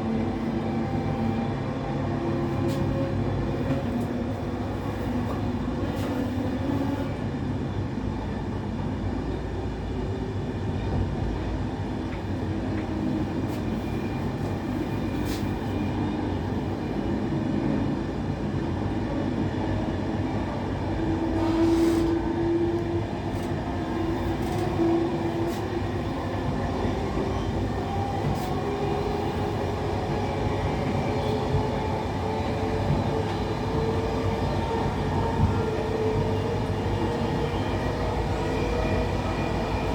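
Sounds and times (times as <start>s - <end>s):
train wheels rumbling on track: 0.0s - 39.9s.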